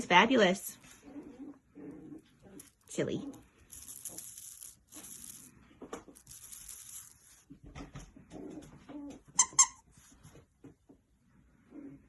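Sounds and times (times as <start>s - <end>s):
toy crinkling and rustling: 0.8s - 10.2s
squeaky dog toy squeaks: 9.3s - 9.9s.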